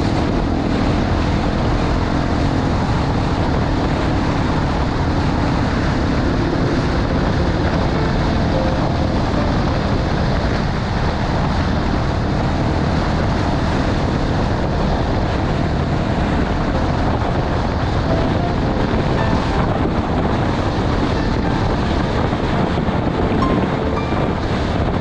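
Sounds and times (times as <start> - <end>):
wind on microphone: 0.0 - 25.0.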